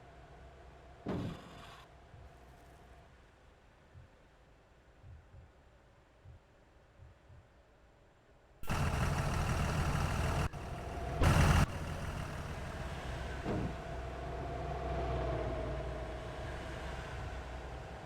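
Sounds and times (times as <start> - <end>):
highway traffic rumble: 8.6 - 18.0.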